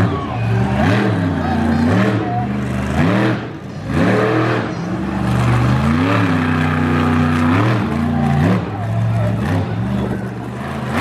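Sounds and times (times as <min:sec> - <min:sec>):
monster truck engine revving: 0:00.0 - 0:11.0.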